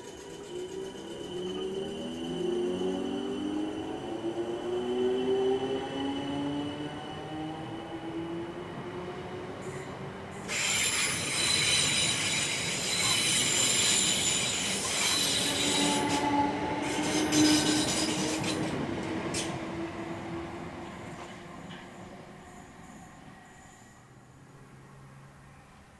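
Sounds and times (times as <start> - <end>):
electric train rumbling on rails: 0.0 - 25.9
metallic wheel squeal: 10.5 - 18.6.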